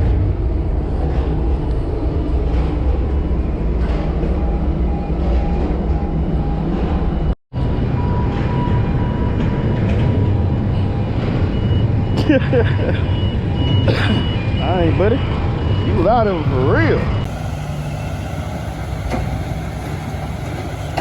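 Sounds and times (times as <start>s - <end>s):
diesel engine rumbling: 7.6s - 21.0s.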